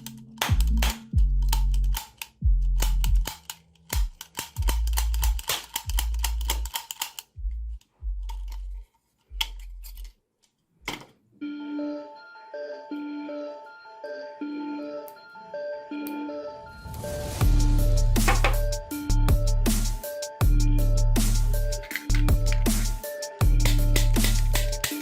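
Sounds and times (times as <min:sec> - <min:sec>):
electronic music with heavy bass: 0:17.4 - 0:24.8.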